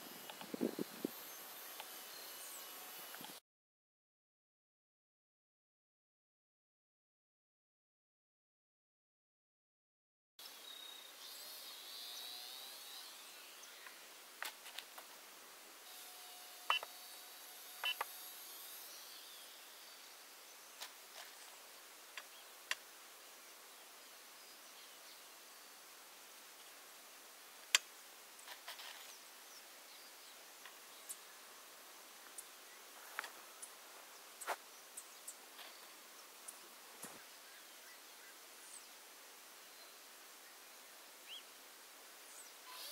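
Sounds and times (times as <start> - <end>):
faint high whine: 0.0 - 3.4, 15.1 - 42.9
outdoor background hiss: 0.0 - 3.4, 10.4 - 42.9.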